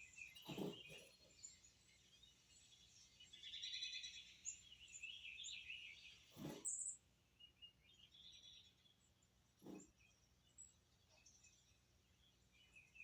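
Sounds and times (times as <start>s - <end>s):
faint bird chirping and trilling: 0.0s - 13.0s.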